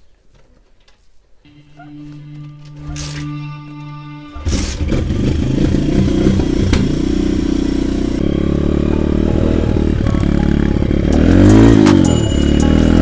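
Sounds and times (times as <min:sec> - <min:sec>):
pit bike engine running: 0:04.4 - 0:13.0.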